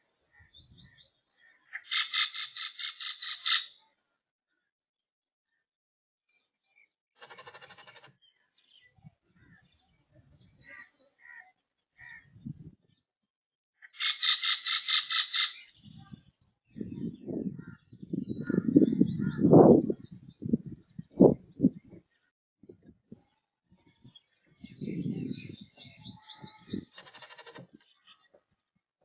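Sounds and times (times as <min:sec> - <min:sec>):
birds chirping: 0:06.4 - 0:13.1, 0:13.8 - 0:22.3, 0:23.8 - 0:28.6.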